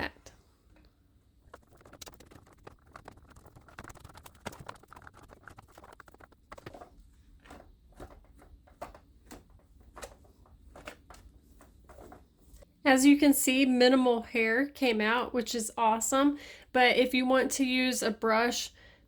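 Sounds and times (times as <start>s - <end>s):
hairbrush scratching through hair: 1.5s - 7.6s.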